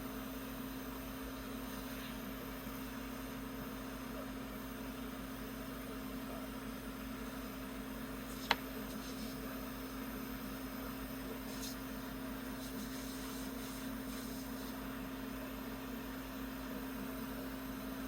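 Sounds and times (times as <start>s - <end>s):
torch flame hissing: 12.5s - 14.8s.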